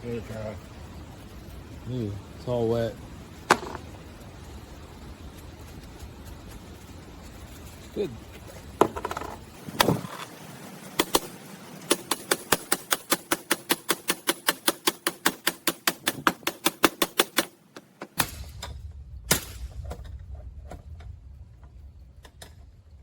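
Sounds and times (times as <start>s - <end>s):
heavy knocks: 3.5s - 3.9s
rapid metallic clicks: 8.9s - 19.7s.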